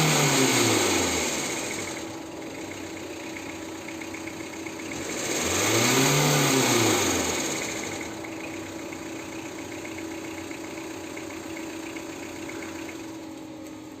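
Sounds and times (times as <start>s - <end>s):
diesel car engine idling: 0.0s - 14.0s
light rhythmic engine ticking: 1.4s - 5.5s, 7.4s - 14.0s.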